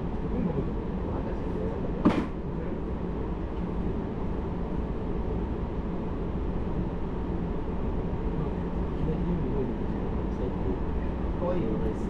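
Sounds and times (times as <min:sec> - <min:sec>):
train wheels rumbling on rail: 0:01.4 - 0:02.5
sharp knock: 0:02.0 - 0:02.4.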